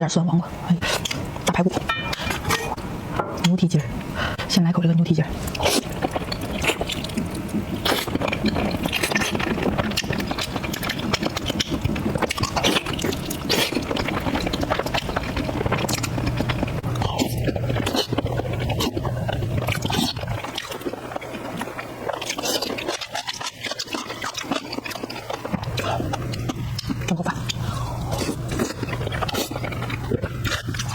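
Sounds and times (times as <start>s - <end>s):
low hum: 0.3s - 21.8s
wet chewing and mouth clicks: 0.8s - 4.5s, 5.3s - 30.9s.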